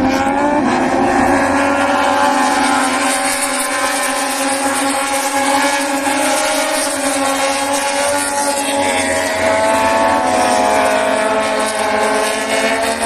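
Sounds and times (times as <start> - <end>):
racing motorcycle engines revving: 0.0 - 13.0.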